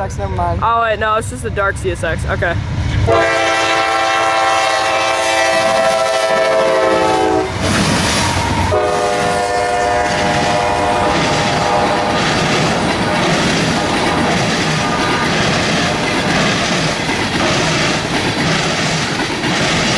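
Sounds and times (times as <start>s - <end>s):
train rumbling and clattering past: 0.0s - 19.9s
locomotive horn blasts: 3.1s - 7.6s, 8.7s - 12.5s.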